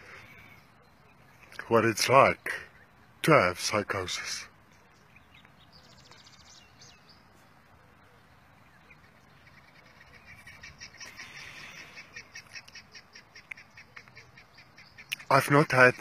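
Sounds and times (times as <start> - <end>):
bird chirping rapidly: 4.8 - 7.4, 8.5 - 16.0.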